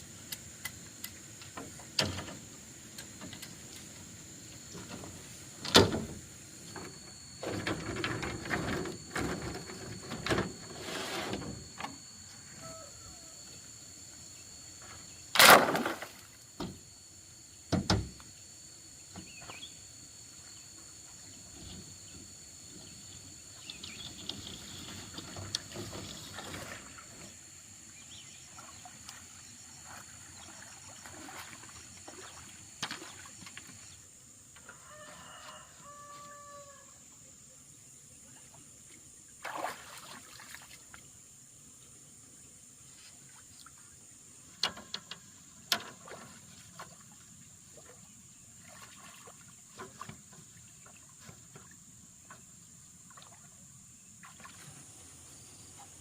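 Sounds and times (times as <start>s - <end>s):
high-pitched hum: 0.0s - 34.0s
rooster crowing: 12.1s - 13.4s, 34.6s - 37.0s.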